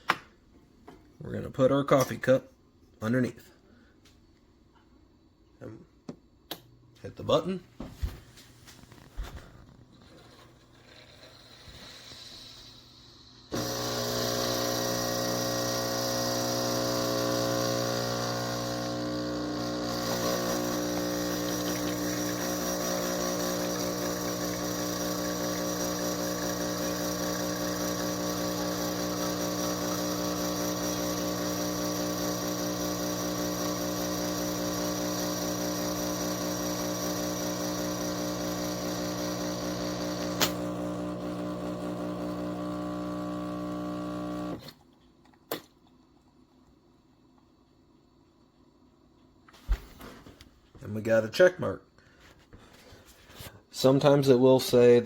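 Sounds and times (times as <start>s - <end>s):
espresso machine pump humming: 10.8s - 44.7s.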